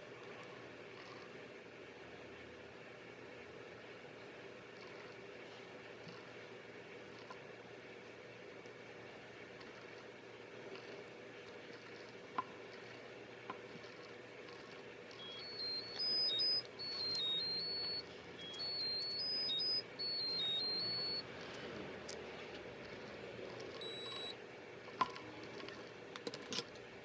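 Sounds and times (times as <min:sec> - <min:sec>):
faint handling clicks: 0:14.6 - 0:22.6
electronic beeper tune: 0:15.2 - 0:21.2, 0:23.8 - 0:24.3
single beep: 0:15.2 - 0:21.2, 0:23.8 - 0:24.3.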